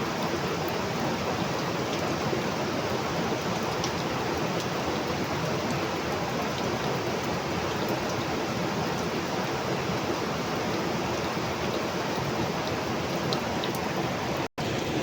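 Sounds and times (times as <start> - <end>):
heavy rain falling: 0.0 - 15.0
raindrop ticks: 12.6 - 13.8.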